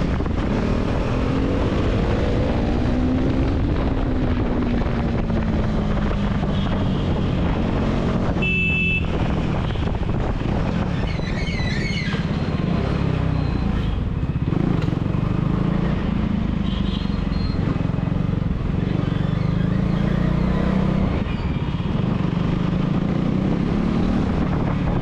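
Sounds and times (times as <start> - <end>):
vehicle horn honking: 8.4 - 9.2.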